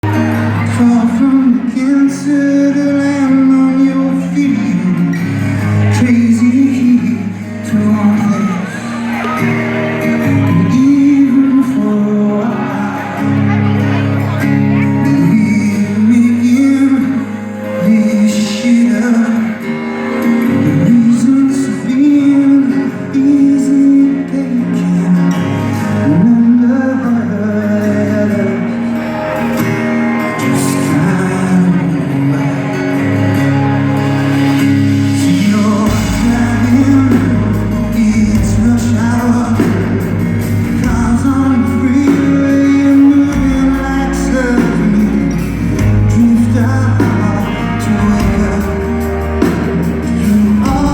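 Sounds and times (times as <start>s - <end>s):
live rock band: 0.0s - 50.9s
man singing lead vocal: 0.0s - 50.9s.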